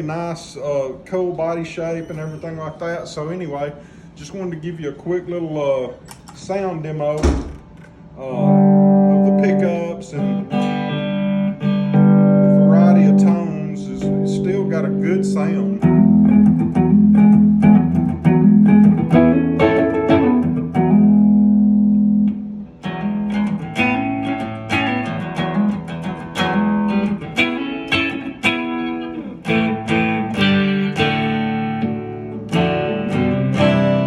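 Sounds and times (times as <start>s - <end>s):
electric guitar through amplifier: 7.3s - 34.0s.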